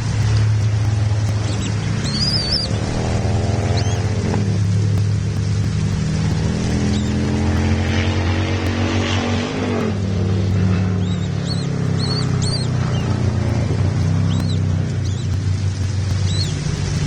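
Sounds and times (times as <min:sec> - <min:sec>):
low engine hum: 0:00.0 - 0:17.0
high bird chirps: 0:00.8 - 0:04.3, 0:05.6 - 0:08.4, 0:10.9 - 0:17.0.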